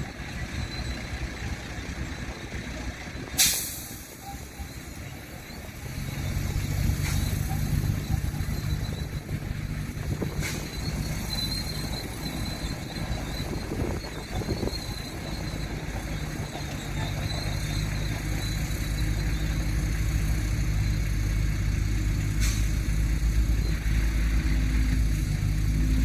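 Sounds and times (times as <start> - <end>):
heavy diesel engine under load: 0.0 - 26.0
air brake hiss: 3.4 - 4.2, 22.4 - 22.8.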